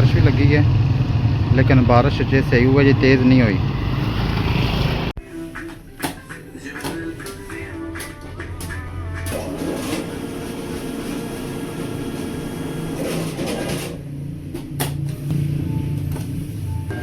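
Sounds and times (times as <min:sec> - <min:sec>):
street noise: 0:00.0 - 0:17.0
vehicle engine humming: 0:00.0 - 0:17.0.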